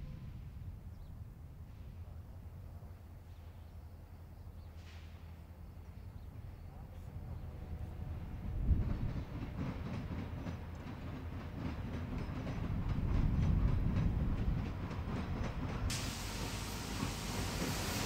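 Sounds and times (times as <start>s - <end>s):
low train rumble: 0.0s - 18.0s
train wheels clacking over crossing: 8.7s - 18.0s
steady hiss: 15.9s - 18.0s.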